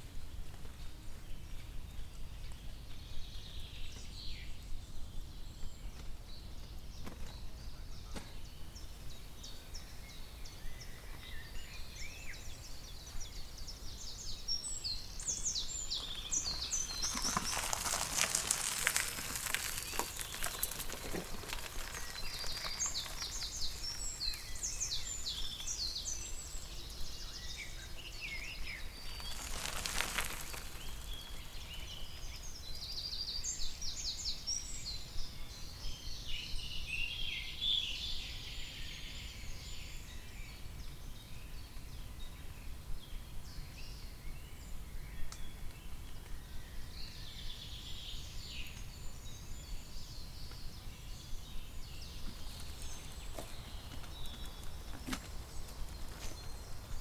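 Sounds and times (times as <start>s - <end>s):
songbirds singing and chirping: 0.0s - 57.0s
clicks and rustles: 16.3s - 24.8s, 29.0s - 31.7s, 52.2s - 56.5s.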